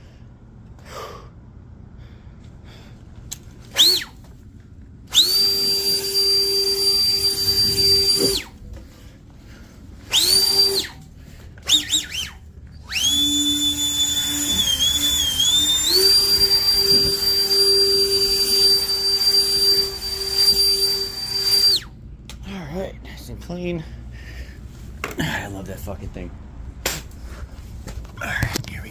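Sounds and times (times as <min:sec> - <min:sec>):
electric power tool motor whining: 0:05.1 - 0:08.5, 0:10.1 - 0:11.0, 0:11.7 - 0:21.9.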